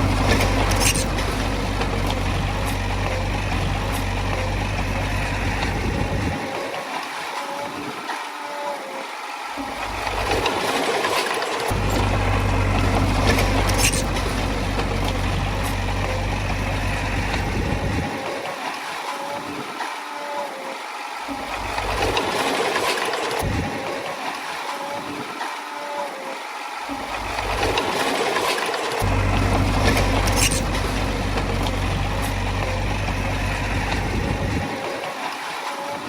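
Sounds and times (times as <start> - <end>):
diesel engine rumbling: 0.0 - 6.5, 9.6 - 18.3, 21.4 - 22.4, 27.0 - 35.1.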